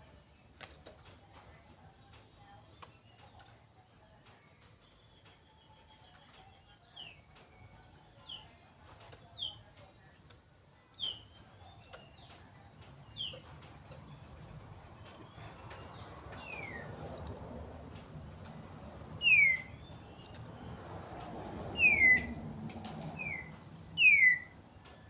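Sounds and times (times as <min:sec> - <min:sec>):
bird calling: 0:19.2 - 0:20.4, 0:21.8 - 0:22.4, 0:23.1 - 0:24.6.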